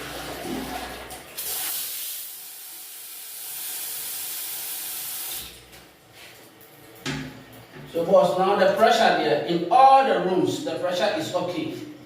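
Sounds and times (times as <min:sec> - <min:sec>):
water jetting under high pressure: 0:00.0 - 0:05.6.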